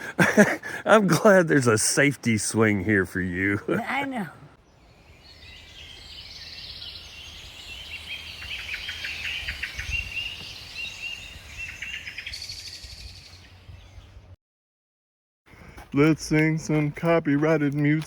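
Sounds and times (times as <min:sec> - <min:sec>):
birds chirping and trilling: 0:04.6 - 0:14.4.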